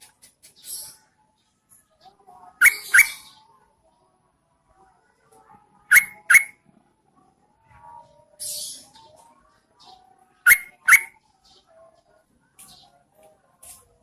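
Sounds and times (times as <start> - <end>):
bird calling sharp notes: 2.6 - 3.3, 5.9 - 6.5, 10.5 - 11.1.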